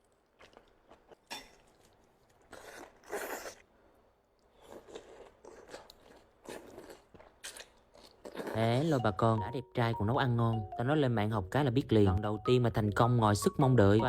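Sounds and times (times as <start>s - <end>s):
close eating and chewing: 0.0s - 10.7s.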